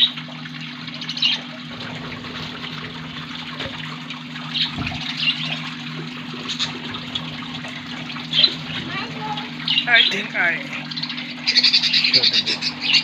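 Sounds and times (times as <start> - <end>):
budgerigars chattering: 11.0 - 13.0.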